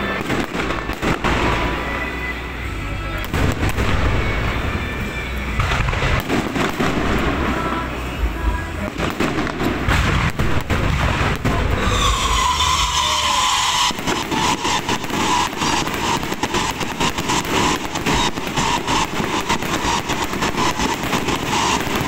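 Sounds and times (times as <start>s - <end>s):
high whistle: 0.0s - 6.7s, 11.8s - 22.0s
firecrackers crackling: 0.0s - 22.0s.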